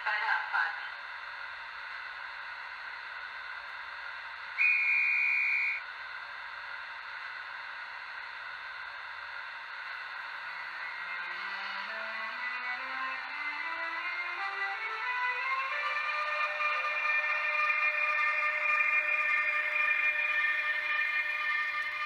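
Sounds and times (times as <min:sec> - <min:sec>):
steady locomotive hiss: 0:00.0 - 0:22.0
inverter rising whine: 0:00.9 - 0:22.0
departure whistle: 0:04.6 - 0:05.9.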